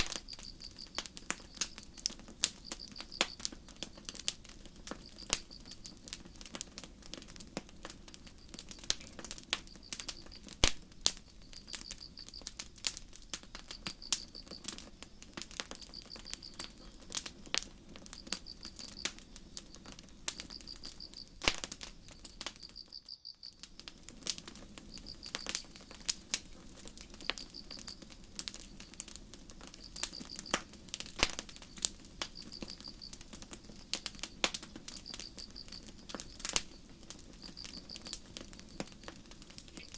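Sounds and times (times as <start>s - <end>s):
crickets chirping: 0.0s - 6.4s, 7.9s - 39.9s
campfire crackling and popping: 0.0s - 39.9s.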